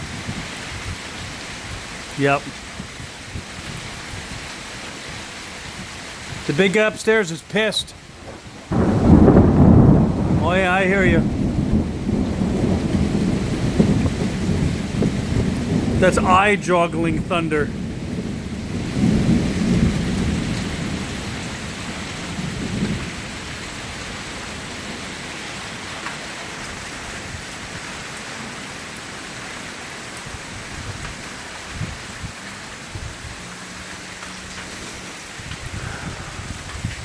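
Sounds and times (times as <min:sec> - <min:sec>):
steady rain falling: 0:00.0 - 0:37.0
thunder rumbling: 0:08.0 - 0:27.9.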